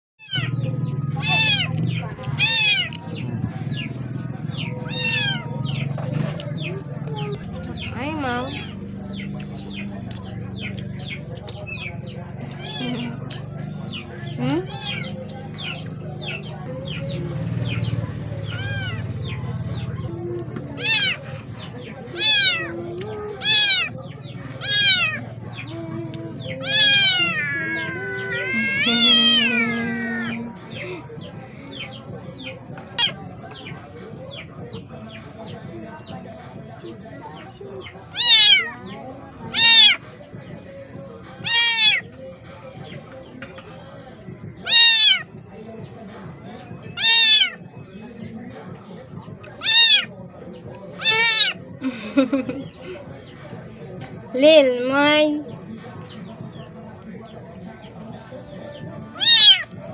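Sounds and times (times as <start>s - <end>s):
kitten meowing loudly: 0.2s - 0.5s, 1.2s - 1.7s, 2.4s - 3.0s, 4.9s - 5.4s, 12.6s - 13.0s, 14.7s - 15.1s, 18.5s - 19.0s, 20.8s - 21.2s, 22.2s - 22.7s, 23.4s - 23.9s, 24.6s - 25.2s, 26.6s - 30.5s, 38.1s - 38.7s, 39.5s - 40.0s, 41.4s - 42.0s, 44.6s - 45.2s, 47.0s - 47.6s, 49.6s - 50.1s, 51.0s - 51.6s, 59.2s - 59.7s.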